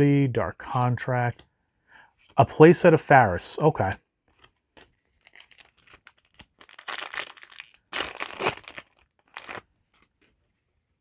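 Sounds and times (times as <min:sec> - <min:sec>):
foil wrapper crinkling and tearing: 0:05.2 - 0:09.7.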